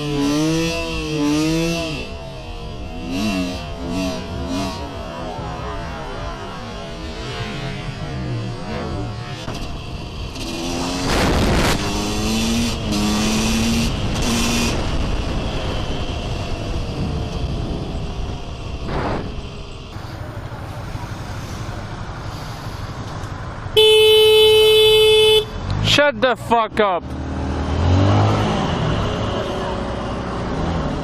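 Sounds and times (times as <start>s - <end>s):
road traffic: 0.0s - 31.0s
car horn blast: 23.8s - 25.6s.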